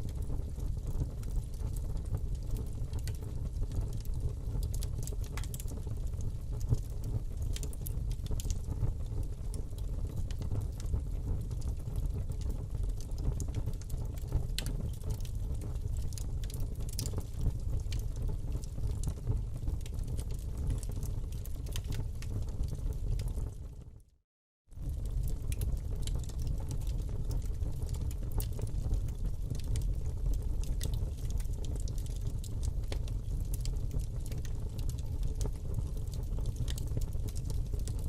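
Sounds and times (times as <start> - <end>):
fire crackling and popping: 0.0 - 24.0, 24.8 - 38.0
low rumble of flames: 0.0 - 24.1, 24.7 - 38.0.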